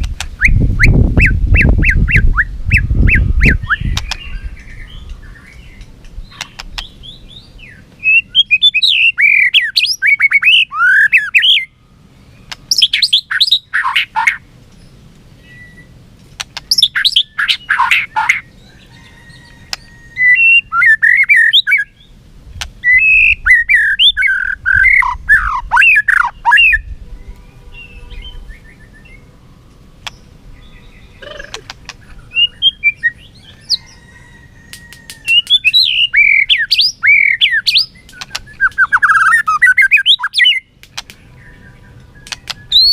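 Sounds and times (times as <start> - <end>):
bird singing whistled notes: 0.4 - 11.8, 12.7 - 16.0, 16.6 - 22.1, 22.8 - 29.3, 30.0 - 34.3, 35.3 - 42.9
bird harsh rasping calls: 31.0 - 34.2.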